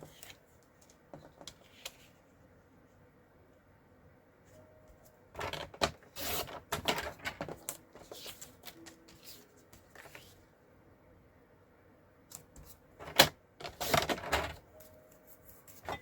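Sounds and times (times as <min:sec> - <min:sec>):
paper rustling and scraping: 0:05.4 - 0:10.4, 0:12.6 - 0:16.0.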